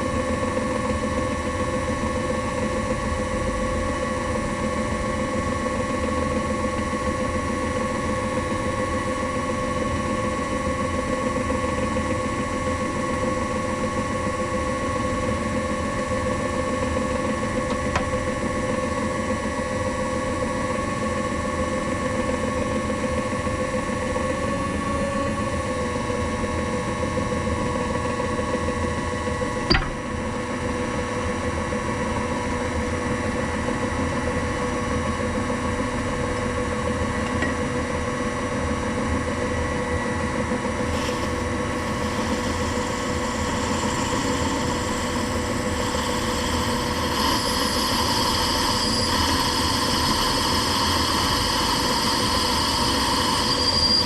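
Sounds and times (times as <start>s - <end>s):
sharp click: 29.7s - 30.0s
machine tool motor humming: 40.9s - 54.0s.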